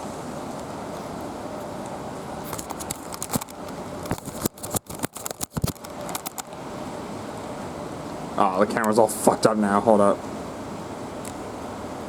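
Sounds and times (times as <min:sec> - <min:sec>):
sharp clicks and crackles: 0:02.5 - 0:06.6.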